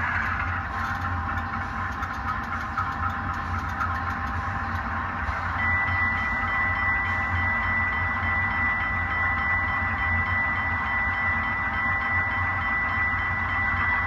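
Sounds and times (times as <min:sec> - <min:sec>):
constant low hum: 0:00.0 - 0:14.0
model diesel locomotive sound: 0:00.0 - 0:14.0
steady high tone: 0:04.5 - 0:14.0.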